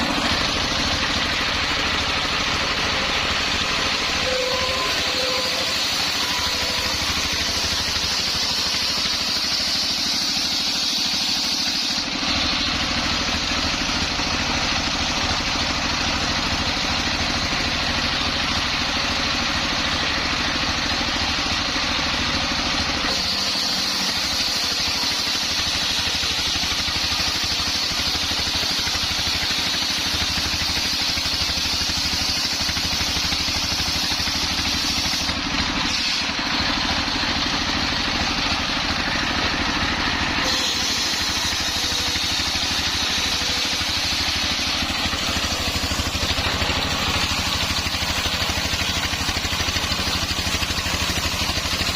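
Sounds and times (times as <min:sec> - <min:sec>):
circular saw cutting log: 0:00.0 - 0:51.9.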